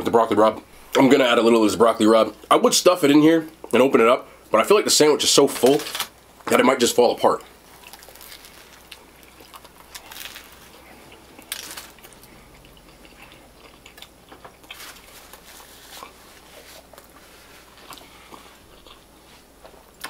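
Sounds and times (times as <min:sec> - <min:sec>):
chewing sandwich: 0:07.7 - 0:20.0.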